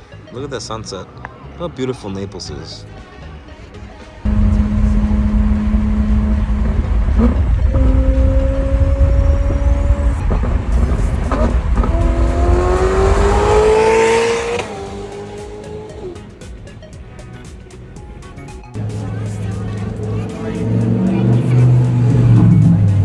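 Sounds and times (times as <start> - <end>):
supercar exhaust rumble: 4.3 - 16.8, 18.8 - 23.0.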